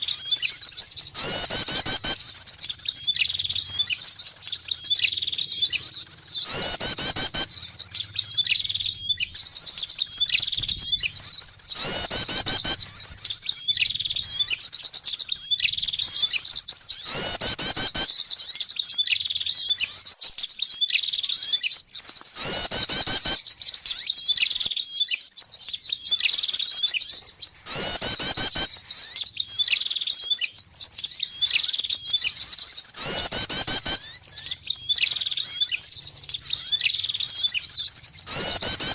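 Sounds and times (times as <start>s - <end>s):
lower bird call phrase: 0.0s - 14.8s, 27.6s - 30.5s, 31.2s - 38.9s
songbirds chirping and twittering: 0.0s - 38.9s.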